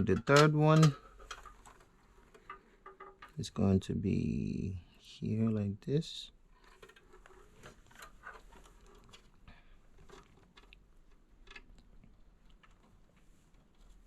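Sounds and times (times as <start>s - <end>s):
clicks and rustles of wires: 0.0s - 3.4s, 6.5s - 14.0s.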